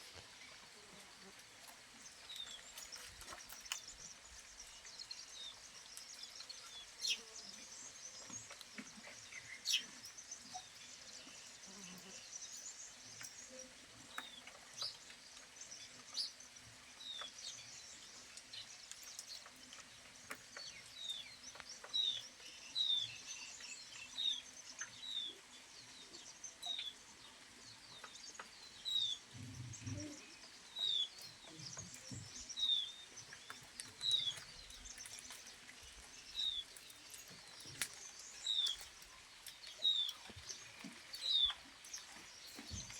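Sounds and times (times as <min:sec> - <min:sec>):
rainwater dripping: 0:00.0 - 0:42.9
bird chirping: 0:20.6 - 0:42.9.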